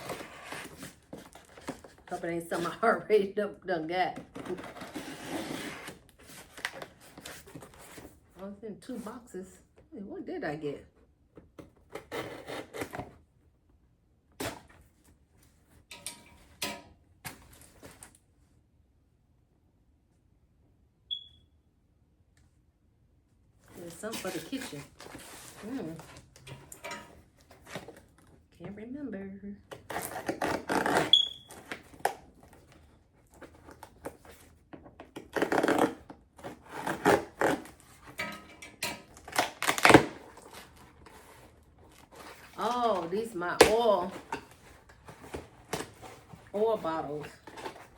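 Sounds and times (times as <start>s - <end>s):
packaging rustling and scraping: 0.0s - 2.8s, 4.2s - 8.3s, 11.7s - 13.2s, 23.6s - 28.4s, 29.8s - 47.9s.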